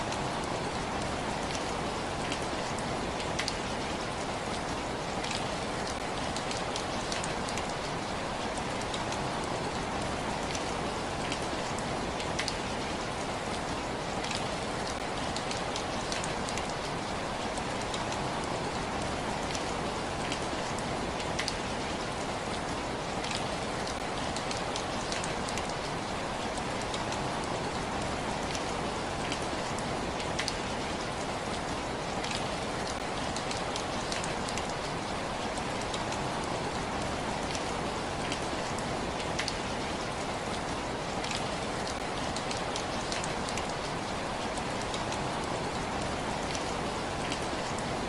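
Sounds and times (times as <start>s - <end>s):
steady rain hiss: 0.0s - 48.0s.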